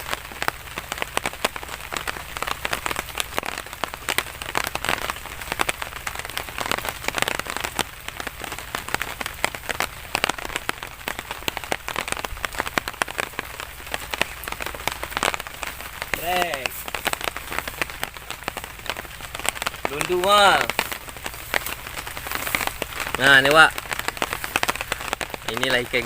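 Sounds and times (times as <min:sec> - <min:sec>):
rain falling: 0:00.0 - 0:26.0
sharp raindrop strikes: 0:00.0 - 0:26.0.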